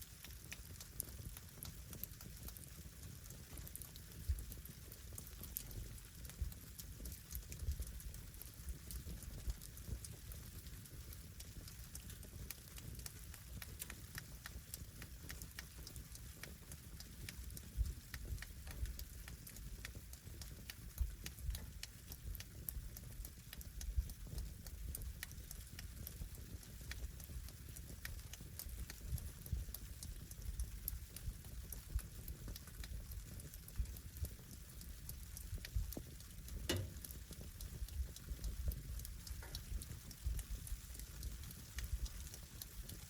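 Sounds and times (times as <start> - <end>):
wood fire crackling and popping: 0.0 - 43.0
low steady rumble: 16.5 - 43.0.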